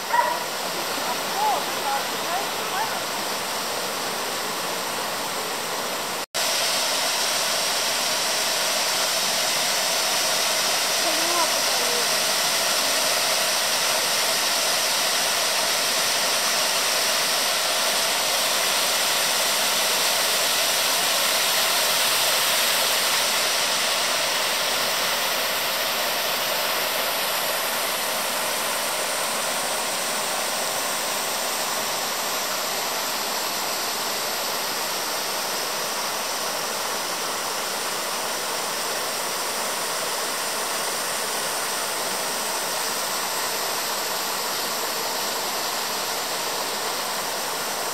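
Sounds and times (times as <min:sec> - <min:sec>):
waterfall roaring: 0:00.0 - 0:08.6, 0:09.3 - 0:16.8.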